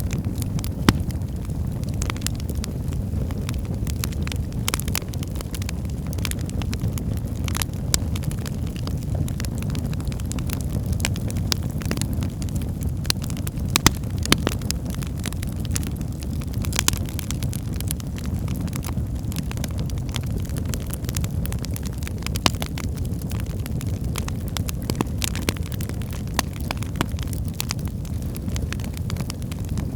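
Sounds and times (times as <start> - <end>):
firewood crackling and popping: 0.0 - 29.9
wood fire burning: 0.0 - 29.9.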